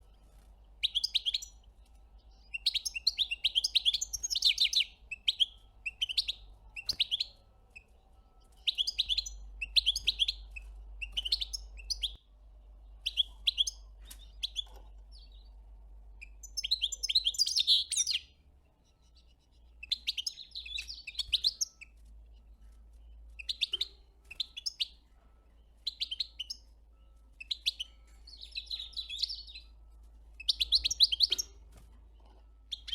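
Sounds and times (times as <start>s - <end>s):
small songbird twittering: 0.8s - 1.6s, 2.2s - 12.2s, 16.2s - 25.0s, 25.6s - 29.8s, 30.4s - 31.6s.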